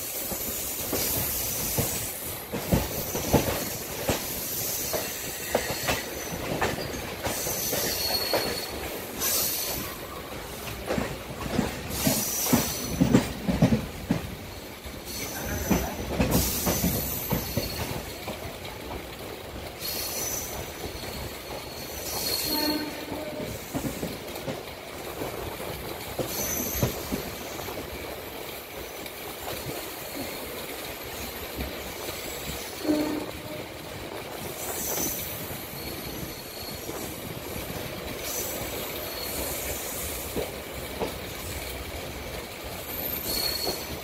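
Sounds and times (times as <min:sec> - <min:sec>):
train wheels rumbling and clattering: 0:00.0 - 0:44.0
high wheel squeals: 0:04.6 - 0:10.2, 0:19.8 - 0:23.1, 0:34.8 - 0:37.1, 0:38.3 - 0:39.9, 0:42.9 - 0:44.0.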